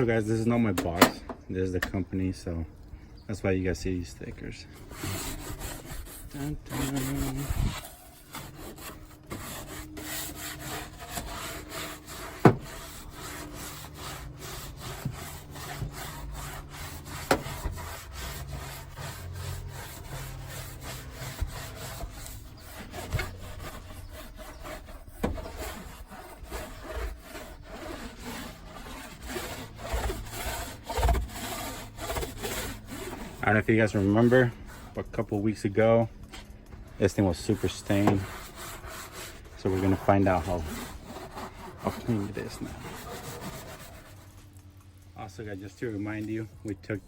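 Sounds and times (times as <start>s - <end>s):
scrub brush scraping floor: 4.8s - 34.5s, 37.1s - 44.3s.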